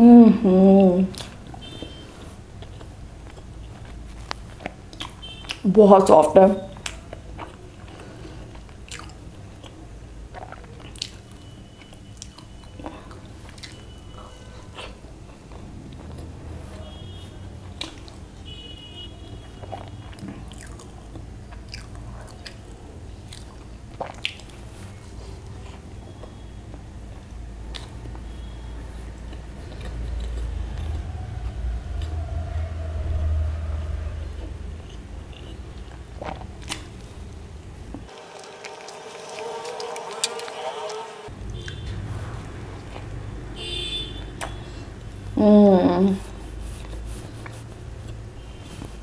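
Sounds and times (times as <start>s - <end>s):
chewing soft food: 1.1s - 5.6s, 6.7s - 18.3s, 19.3s - 32.2s, 34.4s - 43.3s.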